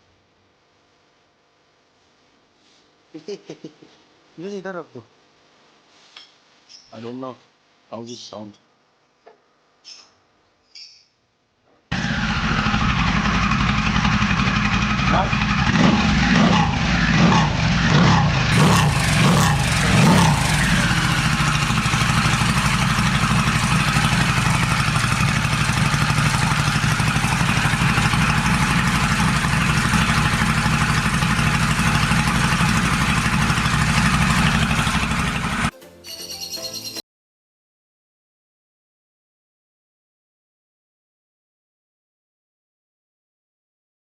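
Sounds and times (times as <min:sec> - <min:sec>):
motorcycle engine idling: 0:11.9 - 0:35.7
motorcycle throttle blips: 0:18.5 - 0:35.7.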